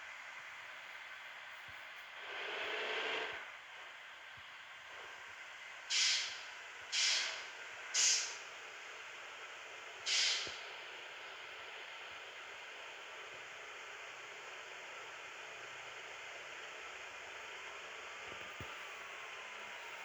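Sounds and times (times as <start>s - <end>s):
bus air brake hissing bursts: 5.9s - 8.4s, 10.0s - 10.7s.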